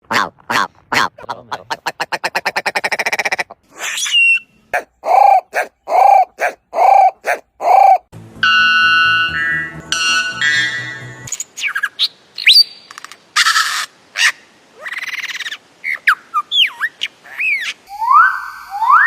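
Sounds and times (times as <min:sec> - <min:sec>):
music with plucked tones: 0:08.2 - 0:11.3.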